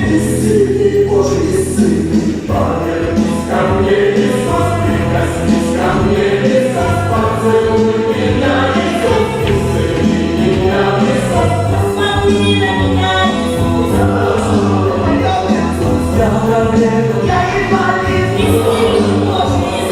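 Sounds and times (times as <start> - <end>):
choir singing: 0.0 - 19.9
instrumental accompaniment: 0.0 - 19.9.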